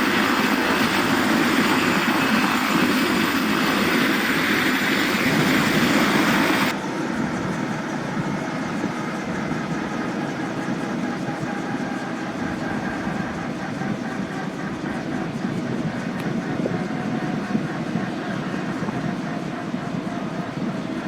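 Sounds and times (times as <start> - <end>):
helicopter engines and rotors running: 0.0 - 21.0.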